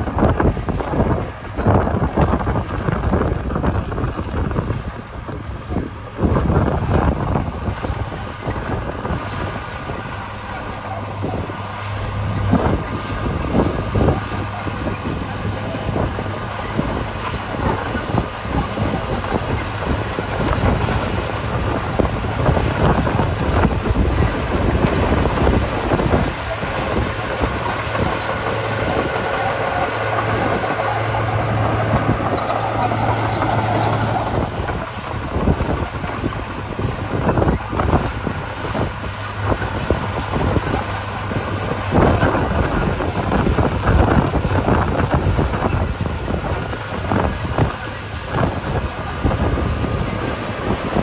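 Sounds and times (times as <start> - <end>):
bulldozer diesel engine under load: 0.0 - 51.0
steel tracks clanking: 0.0 - 51.0.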